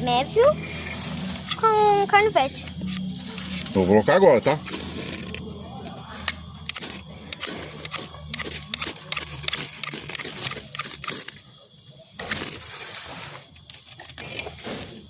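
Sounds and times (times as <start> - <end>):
knife scraping fire-starter rod: 2.7 - 11.4, 12.2 - 15.0.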